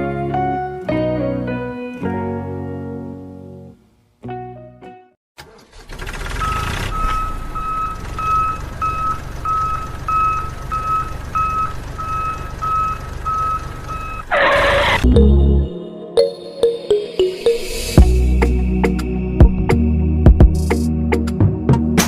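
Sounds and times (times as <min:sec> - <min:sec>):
low engine rumble: 0:06.0 - 0:14.3
reversing alarm beeping: 0:06.4 - 0:15.4.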